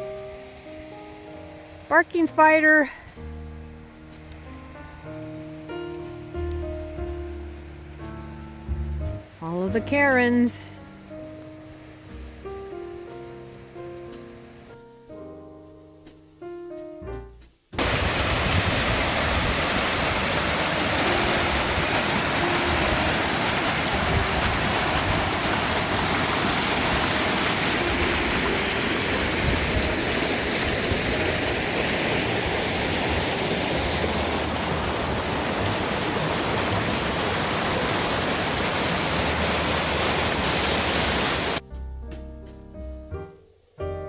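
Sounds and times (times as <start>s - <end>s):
mountain stream rushing: 17.8s - 41.6s.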